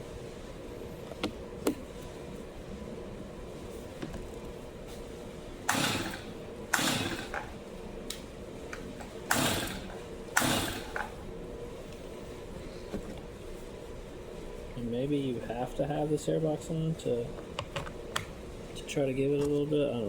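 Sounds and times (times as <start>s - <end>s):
chainsaw recoil starter pulls: 5.7s - 7.5s, 9.3s - 11.1s.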